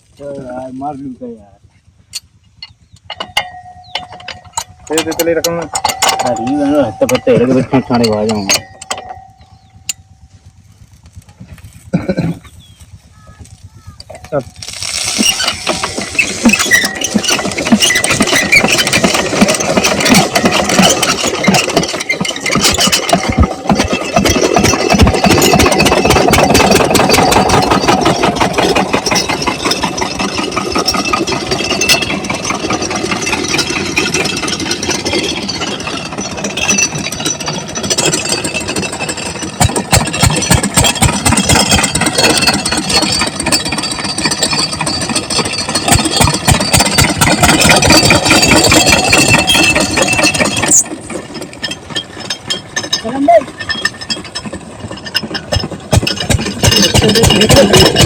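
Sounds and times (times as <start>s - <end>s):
diesel water pump engine running: 4.3s - 58.0s.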